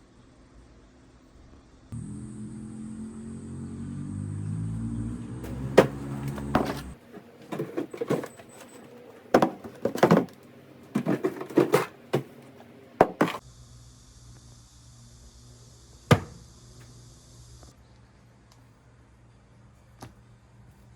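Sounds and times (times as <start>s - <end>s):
household objects knocking and clinking: 5.4s - 13.4s.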